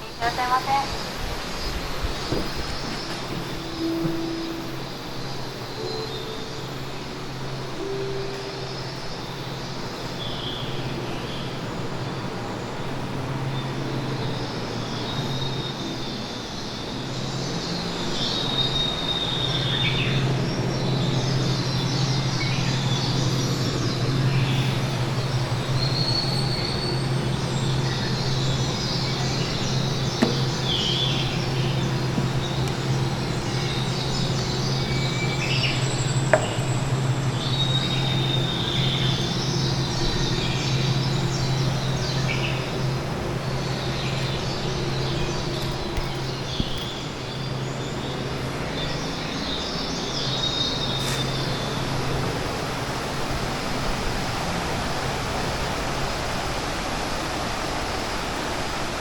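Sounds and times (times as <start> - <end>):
rushing stream water: 0.0 - 59.0
bird chirps: 20.9 - 42.9.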